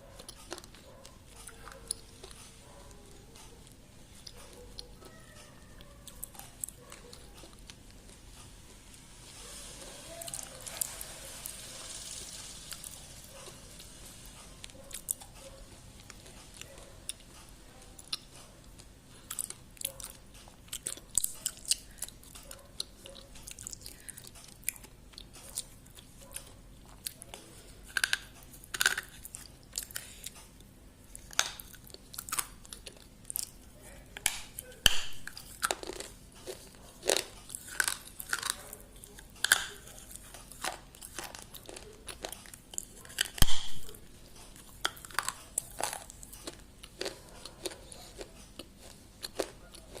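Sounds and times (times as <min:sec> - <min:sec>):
person chewing crunchy food: 0:00.0 - 0:50.0
sharp knock: 0:43.4 - 0:43.9.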